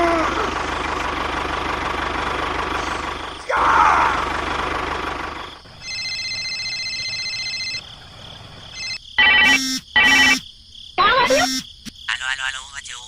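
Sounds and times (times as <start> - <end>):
high electronic tone: 8.8 - 10.4, 11.2 - 11.6.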